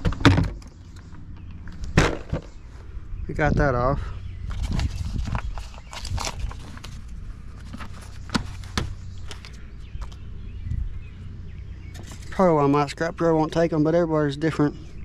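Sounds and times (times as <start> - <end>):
low rumble: 8.9 - 13.8.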